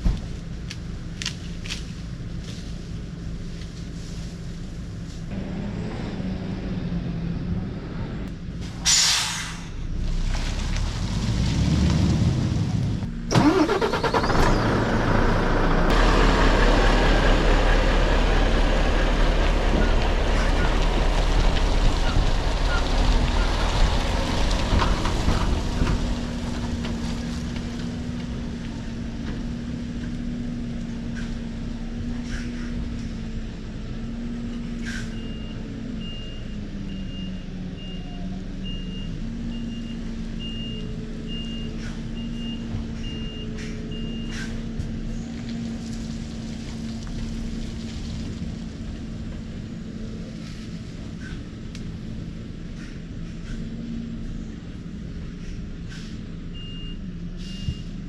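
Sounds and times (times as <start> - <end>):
diesel lorry engine running: 0.0 - 58.0
short sharp hisses: 8.8 - 9.8.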